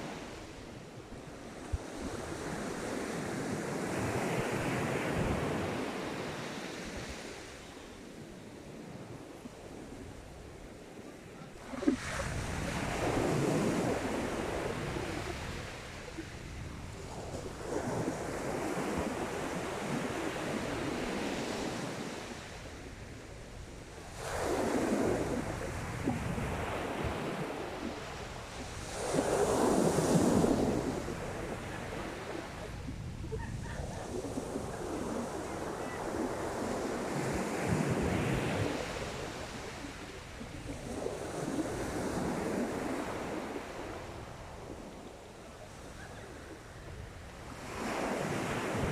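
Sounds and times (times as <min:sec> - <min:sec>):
sea waves breaking: 0:08.6 - 0:22.0, 0:24.1 - 0:45.0
wind buffeting microphone: 0:11.5 - 0:21.0, 0:24.0 - 0:43.0.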